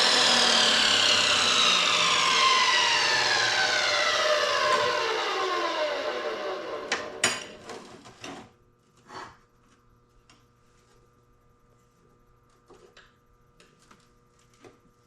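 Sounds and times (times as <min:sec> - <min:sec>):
power tool motor spinning down: 0:00.0 - 0:07.6.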